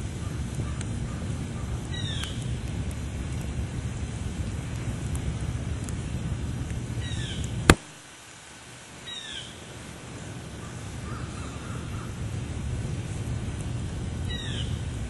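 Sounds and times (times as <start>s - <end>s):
wind rumble on microphone: 0.0s - 7.8s, 9.1s - 15.0s
bird falling calls: 9.0s - 9.6s, 10.6s - 12.2s, 14.3s - 14.8s.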